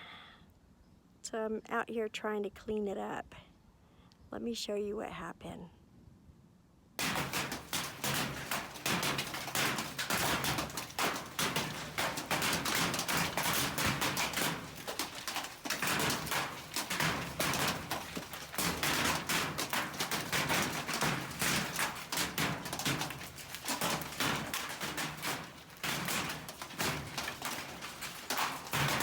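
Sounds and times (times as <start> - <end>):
hailstones pelting hard surfaces: 7.0 - 29.0.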